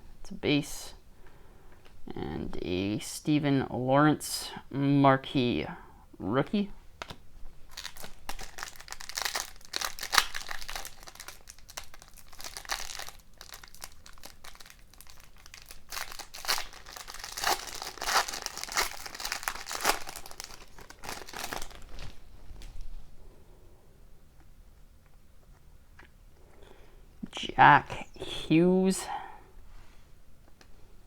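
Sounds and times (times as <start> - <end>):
wrapper being torn and crinkled: 7.0 - 22.3.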